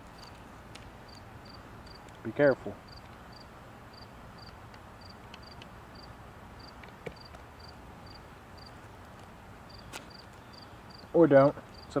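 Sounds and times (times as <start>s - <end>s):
insect chirping: 0.1s - 0.4s, 1.1s - 2.0s, 2.9s - 8.8s, 9.7s - 11.1s, 11.7s - 12.0s.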